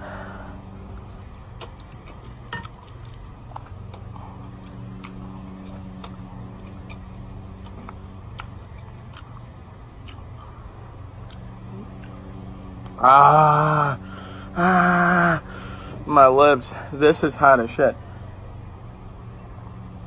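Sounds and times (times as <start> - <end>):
steady low hum: 0.0 - 20.0
man's drawn-out vocal sound: 13.0 - 17.0.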